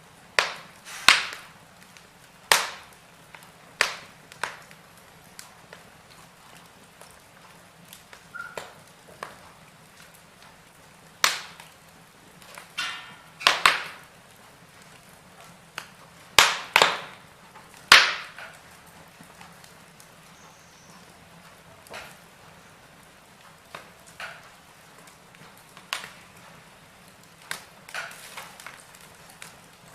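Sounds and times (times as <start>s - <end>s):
wood fire crackling: 0.0s - 29.9s
sharp loud pops from logs: 0.4s - 1.6s, 2.5s - 2.9s, 3.8s - 4.7s, 11.2s - 11.7s, 12.5s - 14.1s, 15.8s - 17.2s, 17.8s - 18.6s, 27.5s - 28.8s.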